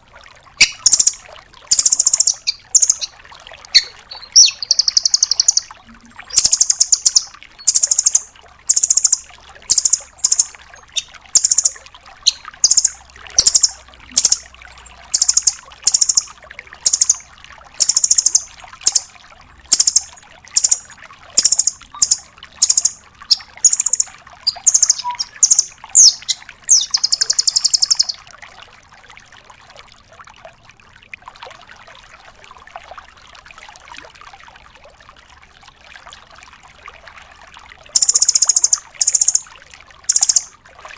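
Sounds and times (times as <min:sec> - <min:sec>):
nuthatch high calls: 0:00.6 - 0:14.5, 0:15.1 - 0:17.2, 0:17.8 - 0:19.1, 0:19.7 - 0:28.2, 0:38.0 - 0:39.5, 0:40.1 - 0:40.5
faint background hiss: 0:00.6 - 0:28.2.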